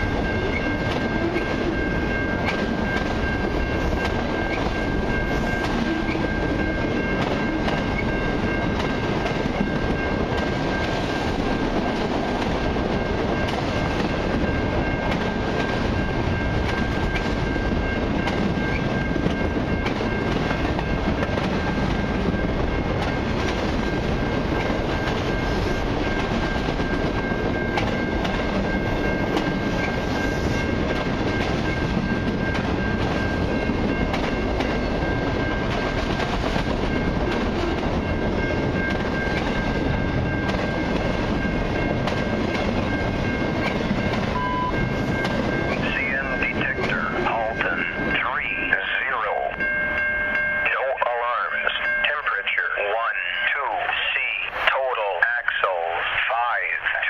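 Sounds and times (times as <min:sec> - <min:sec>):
train wheels rumbling on rails: 0:00.0 - 0:57.0
high-pitched tone: 0:44.3 - 0:55.8.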